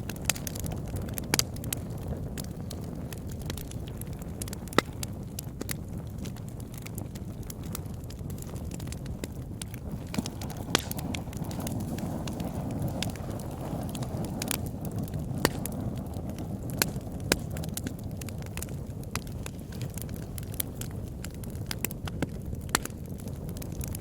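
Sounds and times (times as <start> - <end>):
fire crackling in a fireplace: 0.0 - 24.0.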